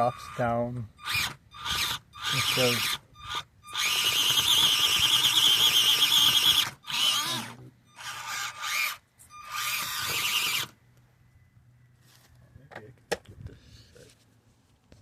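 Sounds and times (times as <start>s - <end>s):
electric motor and gears whining: 0.0s - 10.8s.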